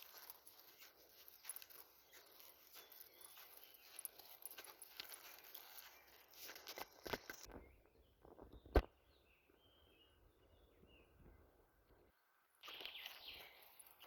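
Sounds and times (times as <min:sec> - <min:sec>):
rustling on forest ground: 0:00.0 - 0:09.8, 0:12.6 - 0:14.0
faint bird chirps: 0:00.0 - 0:14.0.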